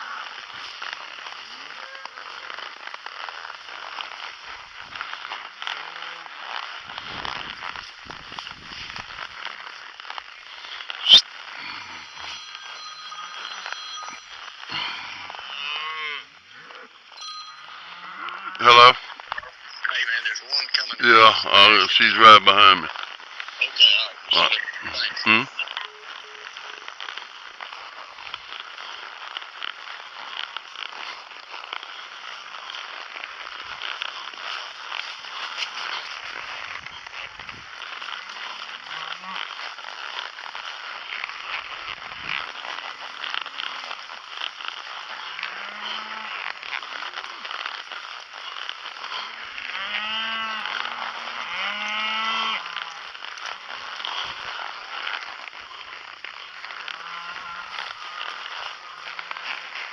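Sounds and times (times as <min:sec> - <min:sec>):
cows mooing: 0:13.5 - 0:17.0, 0:45.0 - 0:46.3, 0:49.1 - 0:53.0, 0:56.8 - 0:59.0.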